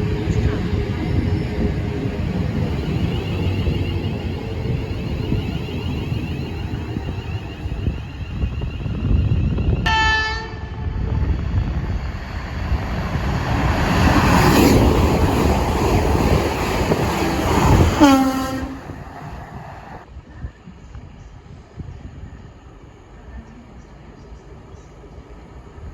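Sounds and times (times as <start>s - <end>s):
train rumbling past: 0.0s - 25.9s
train horn: 9.9s - 11.0s, 17.8s - 19.1s.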